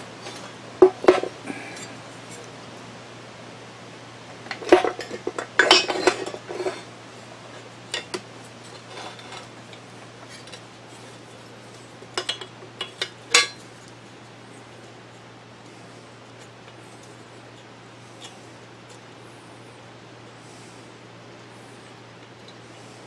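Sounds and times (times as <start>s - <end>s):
metal parts and tools clinking: 4.6s - 6.9s.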